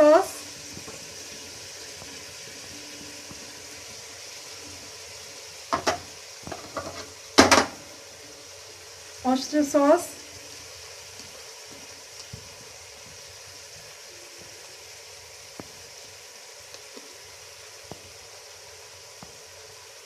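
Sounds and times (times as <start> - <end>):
vegetables sizzling in a pot: 0.0 - 20.0.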